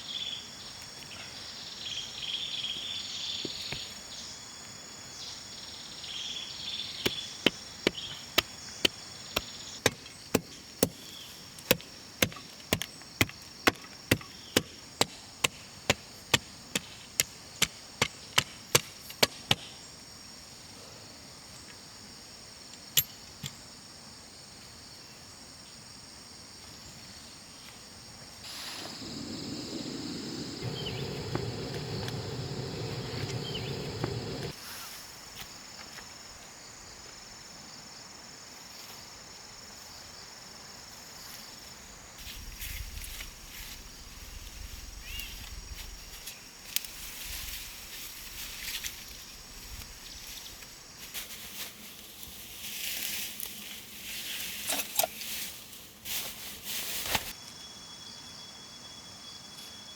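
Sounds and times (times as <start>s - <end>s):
insects chirping: 0.0s - 14.9s, 26.8s - 59.9s
wood chopping strikes: 7.0s - 11.1s, 11.7s - 15.6s
loud rough noise: 28.5s - 34.6s.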